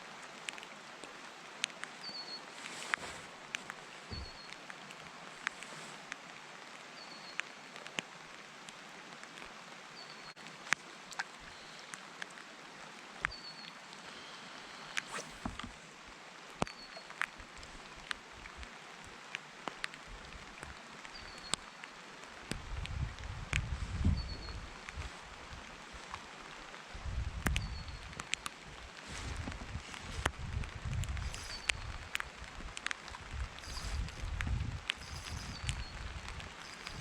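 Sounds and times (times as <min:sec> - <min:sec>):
raindrops striking close by: 0:00.0 - 0:37.0
faint high chirp: 0:04.1 - 0:04.6, 0:31.2 - 0:32.2, 0:33.6 - 0:34.3, 0:35.0 - 0:37.0
heavy rain: 0:24.8 - 0:37.0.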